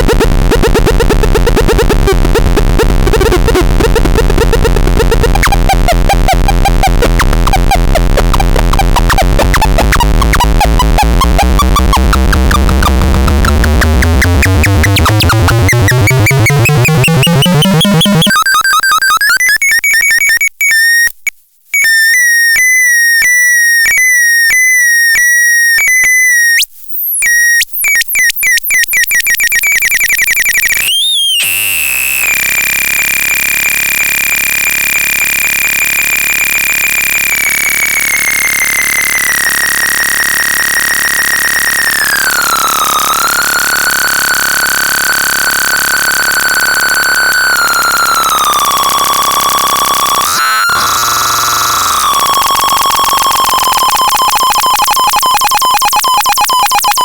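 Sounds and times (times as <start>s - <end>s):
synthesizer buzzing sweeping upward: 0.0s - 18.3s, 30.7s - 53.1s
high synthesizer bleeps: 0.0s - 20.4s, 27.2s - 57.0s.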